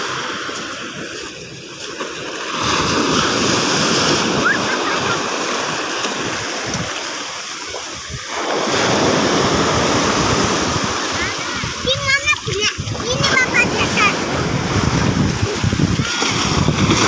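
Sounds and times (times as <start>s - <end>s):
sea waves breaking on beach: 0.0s - 17.0s.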